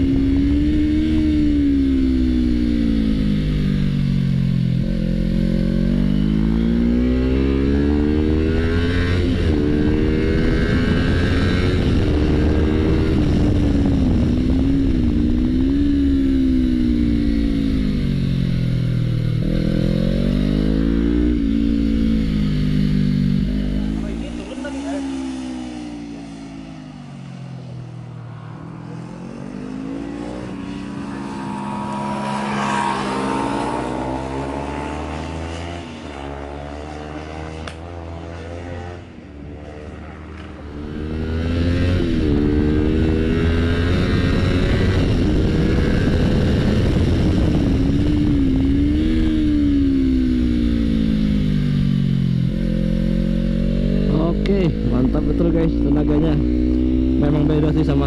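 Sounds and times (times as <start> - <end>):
motorcycle engine revving: 0.0 - 58.0
wind rush: 8.0 - 24.4, 25.0 - 35.9, 40.6 - 52.7.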